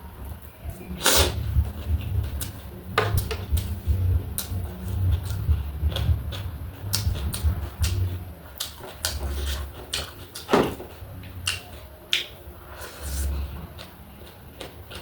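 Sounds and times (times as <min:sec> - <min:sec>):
steady low rumble: 0:00.0 - 0:15.0
crunchy chewing: 0:04.4 - 0:15.0.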